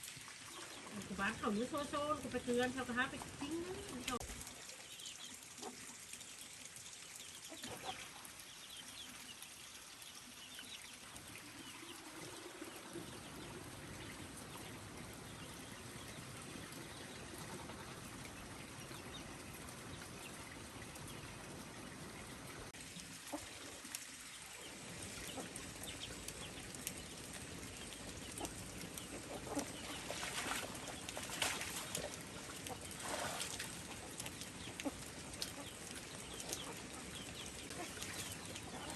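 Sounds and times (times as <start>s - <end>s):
chickens clucking: 28.0s - 38.9s.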